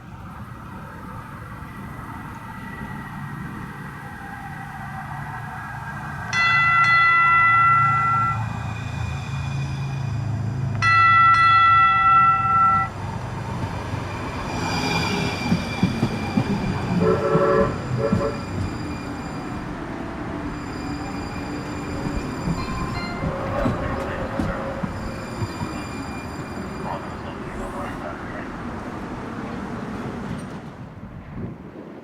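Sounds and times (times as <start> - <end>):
train wheels on rails: 5.2 - 32.0
locomotive air horn blast: 10.8 - 12.9, 17.0 - 18.6.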